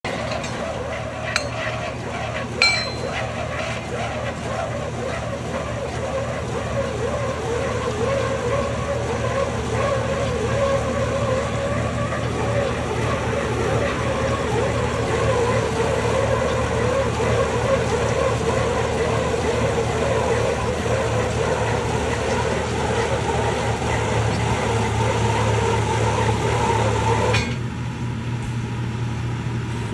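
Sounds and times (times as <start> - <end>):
drilling rig engine noise: 0.0 - 27.6
low hum: 0.1 - 3.6.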